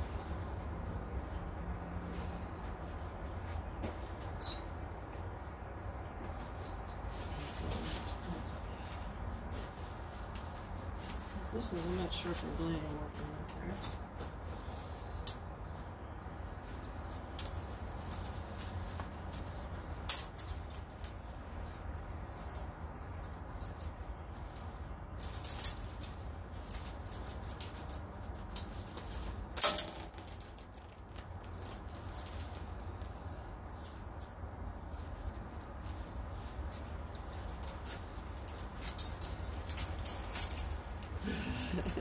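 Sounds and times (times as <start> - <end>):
light clicks and rustling: 23.3 - 42.0.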